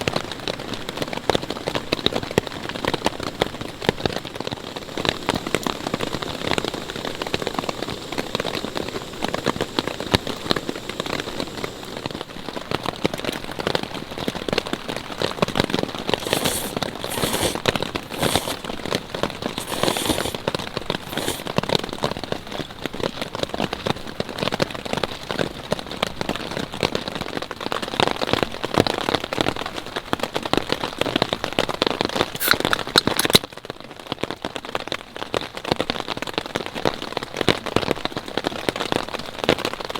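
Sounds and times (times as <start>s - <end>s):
steady rain: 0.0s - 14.1s
high hissing: 4.4s - 12.2s, 16.2s - 18.8s, 19.5s - 20.4s, 21.0s - 21.5s.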